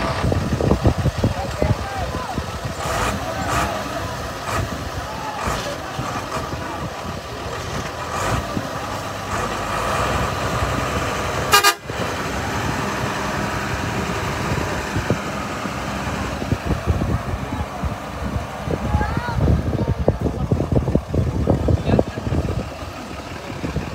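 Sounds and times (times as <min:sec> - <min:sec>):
vehicle engines running: 0:00.0 - 0:23.9
loud horn toot: 0:11.4 - 0:12.1.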